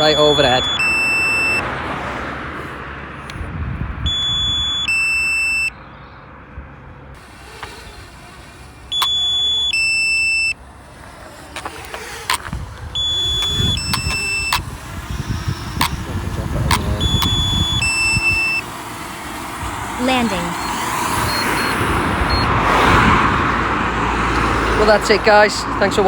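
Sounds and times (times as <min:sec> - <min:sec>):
two-note warning beep: 0:00.0 - 0:01.6, 0:20.1 - 0:22.5.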